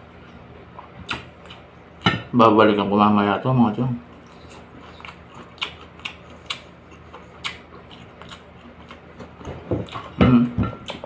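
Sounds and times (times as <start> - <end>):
faint steady hum: 0.0 - 11.0
crisp fried fish being chewed: 4.1 - 11.0.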